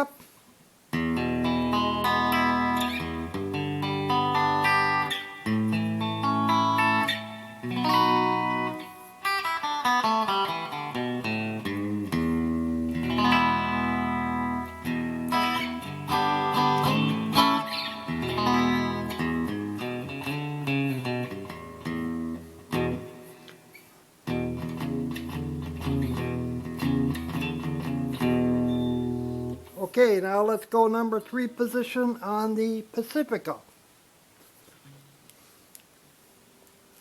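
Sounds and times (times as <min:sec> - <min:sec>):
electric guitar through amplifier: 0:00.9 - 0:29.8.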